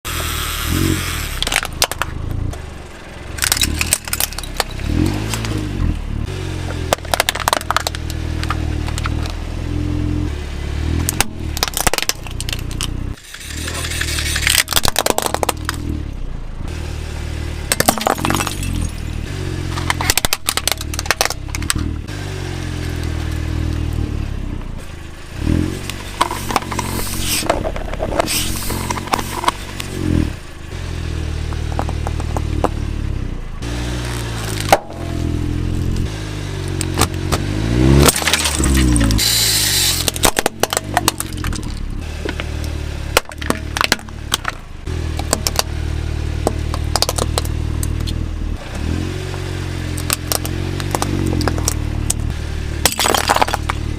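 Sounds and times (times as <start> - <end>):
car engine running: 0.0 - 53.9
tyres crushing brittle objects: 6.9 - 9.3, 11.0 - 15.9, 17.7 - 19.0, 19.7 - 21.9, 36.9 - 45.7, 46.4 - 48.2, 50.0 - 52.2, 52.8 - 53.9.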